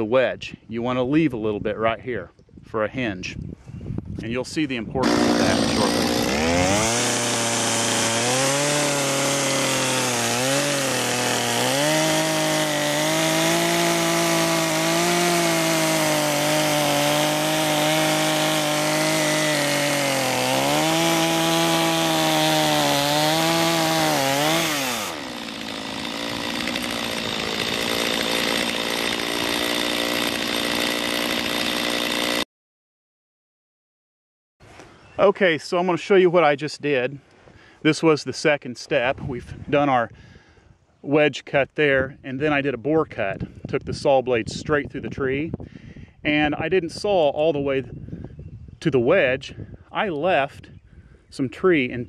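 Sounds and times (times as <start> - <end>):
chainsaw cutting into tree trunk: 5.0 - 32.5.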